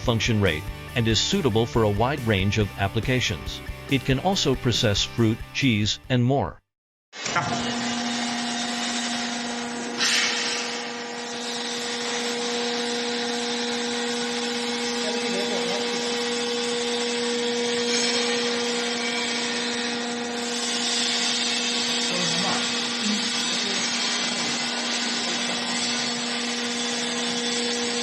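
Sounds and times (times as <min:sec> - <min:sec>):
meat grinder running: 0:07.3 - 0:28.0.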